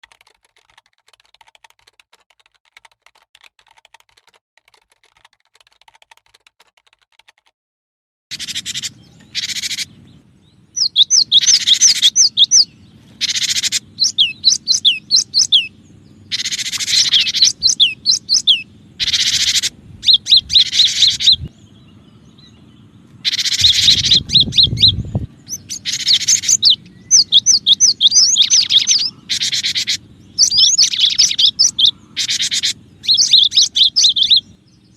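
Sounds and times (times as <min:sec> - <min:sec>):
bird whistled song: 0:08.3 - 0:34.9
low hum: 0:08.6 - 0:34.9
low rumble: 0:19.7 - 0:25.8.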